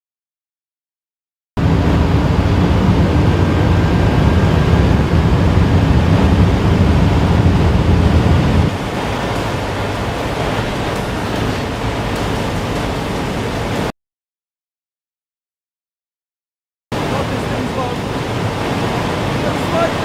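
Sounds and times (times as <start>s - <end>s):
low drivetrain drone: 1.6s - 13.9s
wind and road noise: 1.6s - 13.9s, 17.0s - 20.0s.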